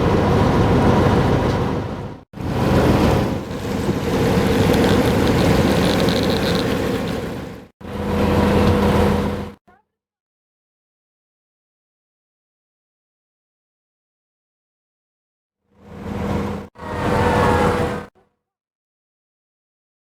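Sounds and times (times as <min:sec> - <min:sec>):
vehicle engine running: 0:02.4 - 0:09.5.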